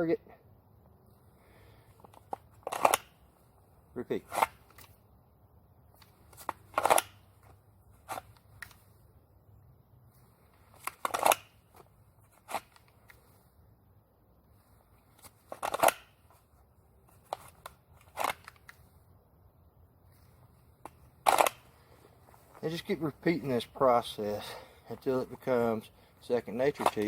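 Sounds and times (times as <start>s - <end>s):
handgun holster scrapes: 4.2s - 5.0s, 6.0s - 9.0s, 10.1s - 13.6s, 14.5s - 19.0s, 20.1s - 23.7s, 26.4s - 27.0s.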